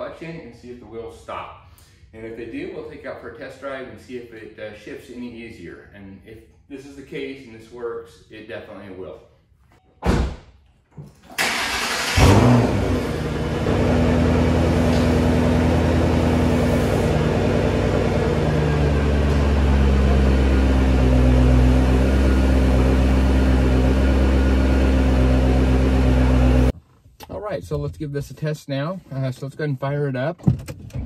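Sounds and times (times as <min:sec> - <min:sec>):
car engine starting and idling: 0:11.2 - 0:26.7
engine revving: 0:11.4 - 0:26.7.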